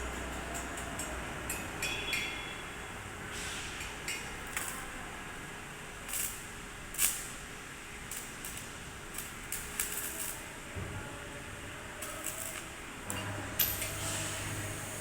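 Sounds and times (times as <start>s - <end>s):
arc welding hissing sizzles: 5.9s - 10.6s, 12.0s - 15.0s.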